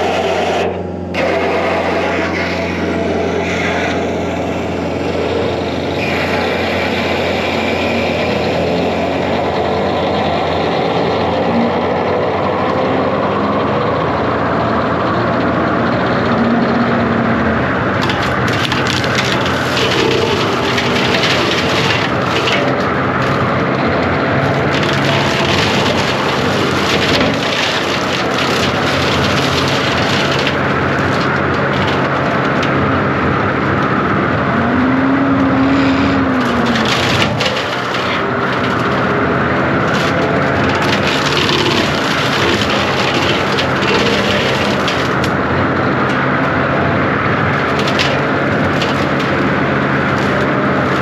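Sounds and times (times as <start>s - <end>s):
diesel engine under load: 0.0s - 51.0s
wood and brush cracking: 17.6s - 51.0s.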